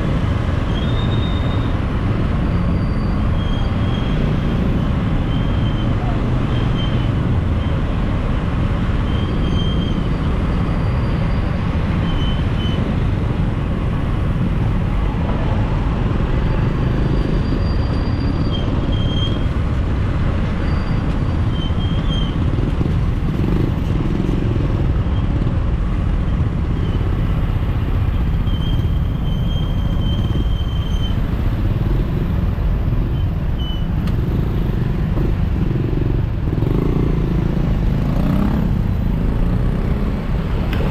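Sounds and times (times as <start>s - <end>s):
city road traffic: 0.0s - 40.9s
motorcycles running: 11.4s - 40.9s.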